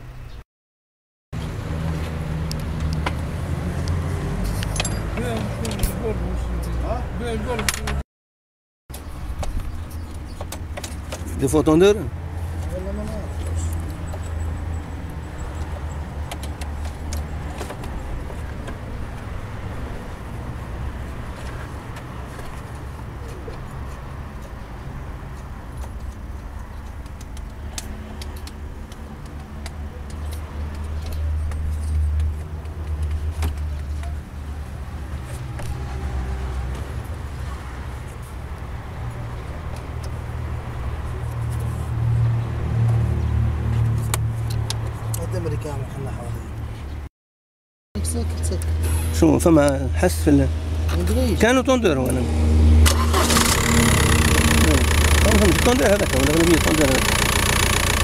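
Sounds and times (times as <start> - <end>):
diesel engine running: 52.8 - 58.0.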